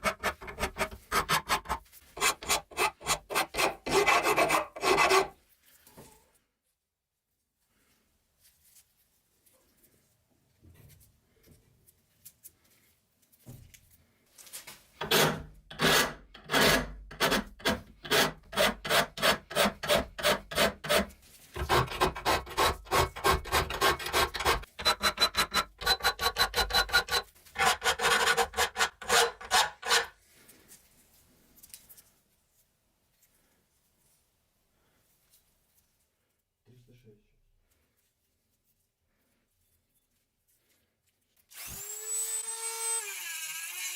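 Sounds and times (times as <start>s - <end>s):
metal filing strokes: 0.0s - 5.4s, 15.0s - 30.2s.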